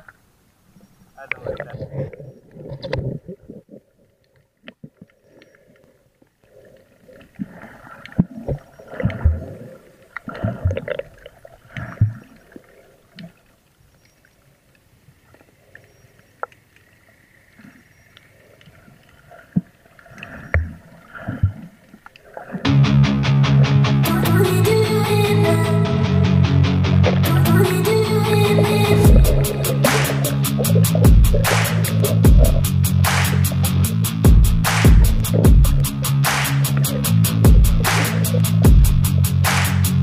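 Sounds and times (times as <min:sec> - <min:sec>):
water sloshing underwater: 0:00.0 - 0:22.7, 0:27.3 - 0:36.1.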